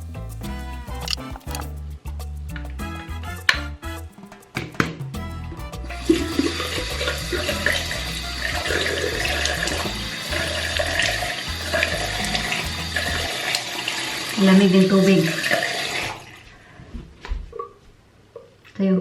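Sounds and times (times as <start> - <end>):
water splashing in basin: 6.0 - 16.6.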